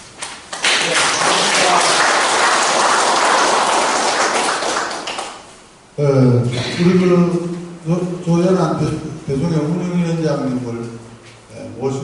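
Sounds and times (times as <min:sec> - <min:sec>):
audience clapping: 0:00.2 - 0:05.6.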